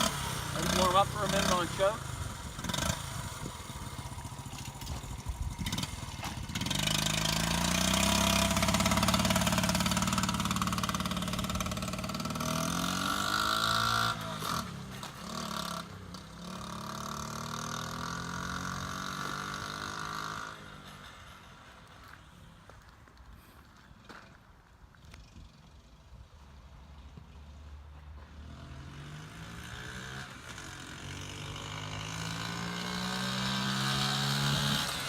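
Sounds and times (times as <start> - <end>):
motorcycle engine revving: 0.0 - 21.9, 28.2 - 35.0.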